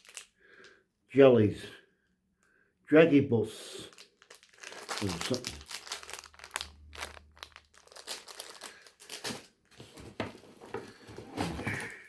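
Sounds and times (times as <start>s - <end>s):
plastic snack packets crinkling: 0.0s - 0.8s, 3.6s - 11.0s.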